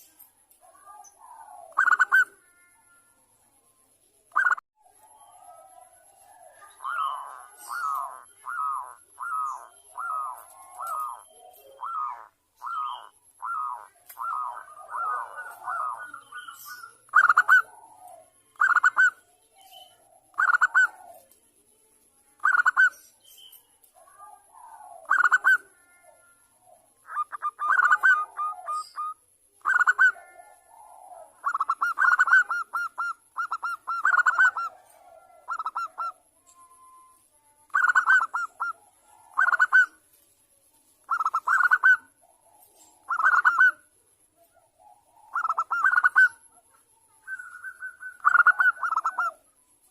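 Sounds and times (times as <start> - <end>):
dove cooing: 0.0 - 3.0, 4.4 - 21.4, 24.0 - 37.1, 37.7 - 40.0, 41.0 - 49.9.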